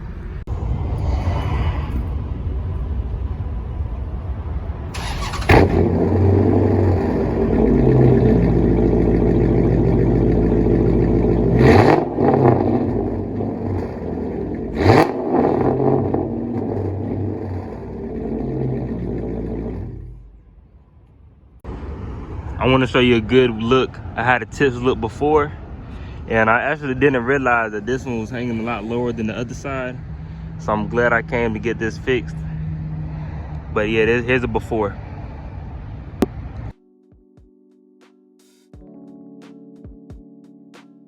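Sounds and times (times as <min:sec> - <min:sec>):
engine revving throttle blips: 0:00.0 - 0:25.8, 0:26.8 - 0:36.7
car engine idling: 0:02.4 - 0:20.8.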